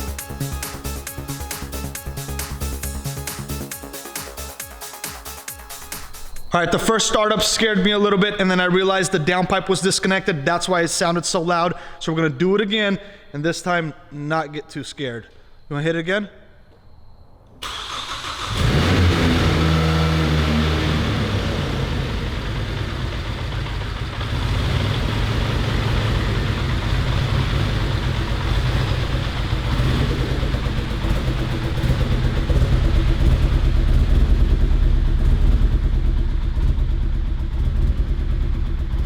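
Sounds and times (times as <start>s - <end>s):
car engine cranking and idling: 17.6s - 39.0s.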